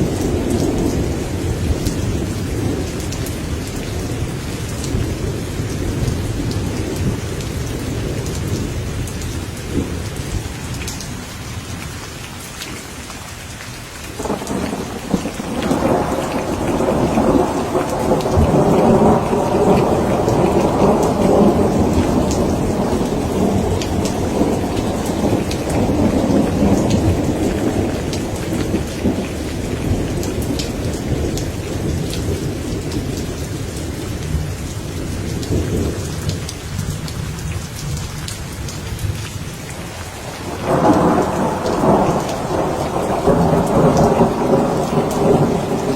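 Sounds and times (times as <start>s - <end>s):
heavy rain: 0.0s - 45.9s
thunder rumbling: 14.2s - 45.9s.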